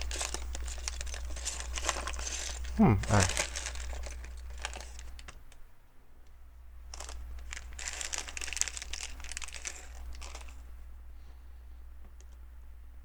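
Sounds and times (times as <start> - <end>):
plastic pieces crinkling and rustling: 0.0 - 5.3, 6.9 - 10.6.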